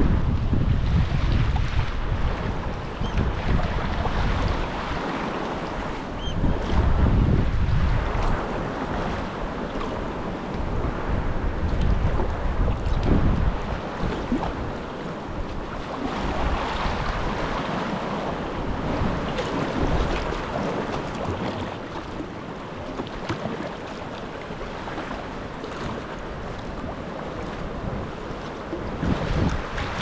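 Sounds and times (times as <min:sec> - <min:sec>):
choppy sea water sloshing: 0:00.0 - 0:30.0
wind buffeting microphone: 0:00.0 - 0:30.0
small water splashes: 0:19.3 - 0:30.0.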